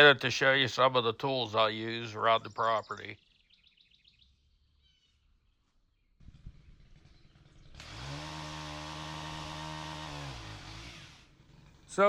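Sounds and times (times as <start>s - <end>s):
two-stroke pole saw engine revving: 6.3s - 12.0s.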